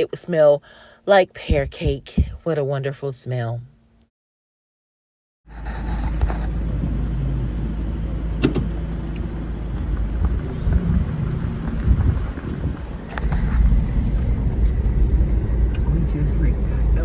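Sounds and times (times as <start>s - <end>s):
car road and engine rumble: 5.5s - 17.0s.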